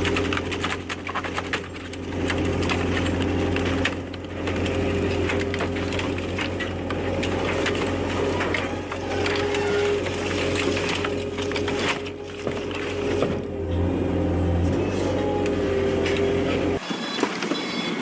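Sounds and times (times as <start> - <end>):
metal and glass crunching: 0.0 - 13.4
crushing machine humming: 0.0 - 18.0.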